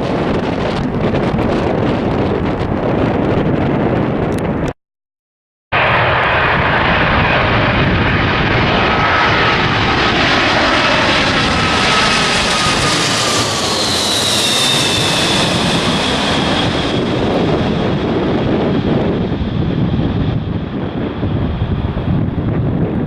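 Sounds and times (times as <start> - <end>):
jet engines passing: 5.7 - 23.0.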